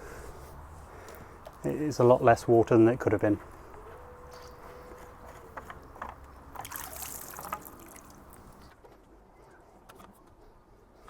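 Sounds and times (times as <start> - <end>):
water trickling from a pipe: 6.6 - 8.7.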